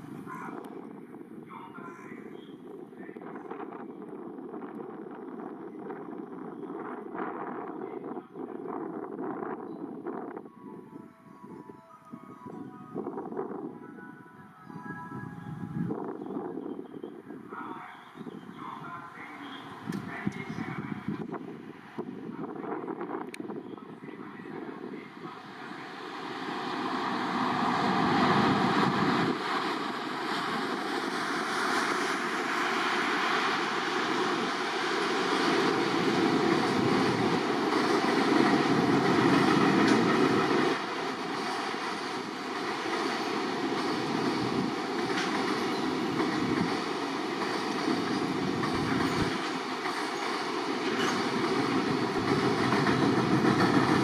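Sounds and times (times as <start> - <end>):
train wheels rumbling on rail: 15.4 - 54.0.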